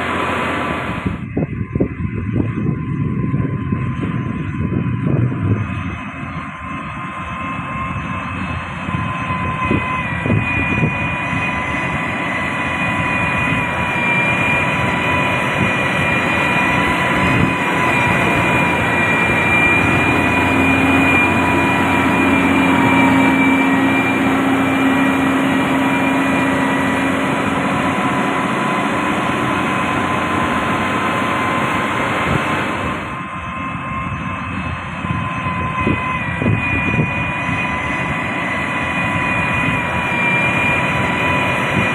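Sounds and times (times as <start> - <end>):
heavy diesel machinery rumbling: 0.0 - 41.9
high steady whine: 0.0 - 41.9.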